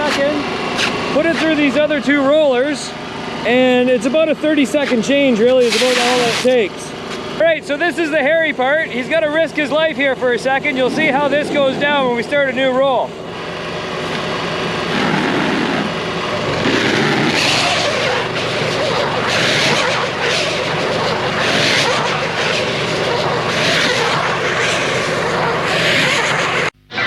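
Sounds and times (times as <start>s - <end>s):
engine running steadily: 0.0s - 26.9s
rushing noise: 13.9s - 27.0s.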